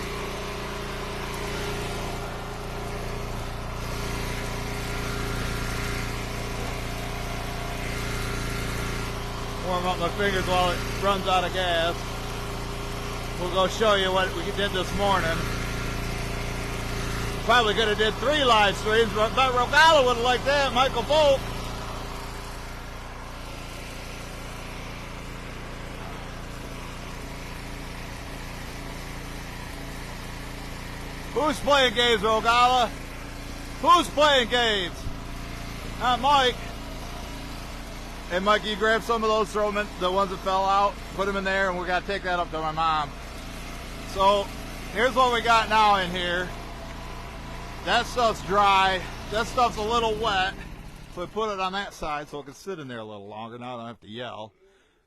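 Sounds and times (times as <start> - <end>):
log splitter engine idling: 0.0 - 53.8.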